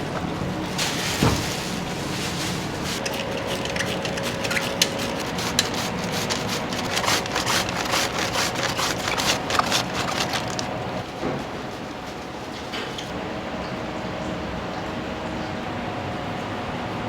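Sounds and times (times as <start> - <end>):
utensils clicking and knocking: 3.0 - 11.0.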